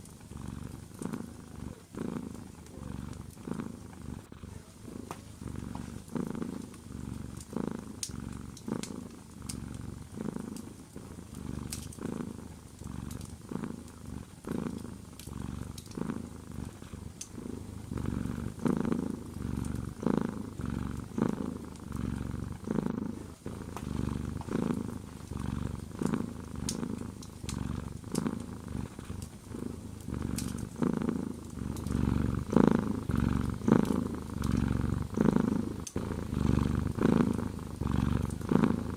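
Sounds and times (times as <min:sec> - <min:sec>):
cat purring: 0:00.0 - 0:38.9
fireplace fire crackling: 0:00.0 - 0:38.9.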